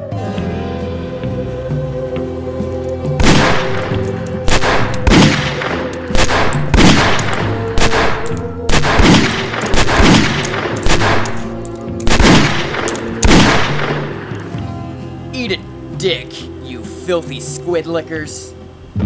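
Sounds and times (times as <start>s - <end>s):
music with long held tones: 0.0s - 19.0s
gunshots: 3.2s - 14.4s.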